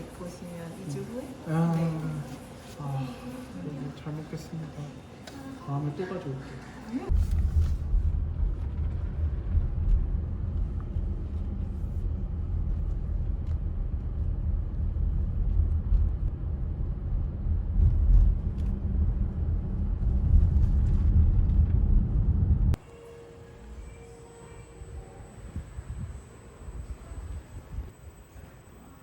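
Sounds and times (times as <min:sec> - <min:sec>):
low steady rumble: 0:07.1 - 0:22.9, 0:23.5 - 0:29.0.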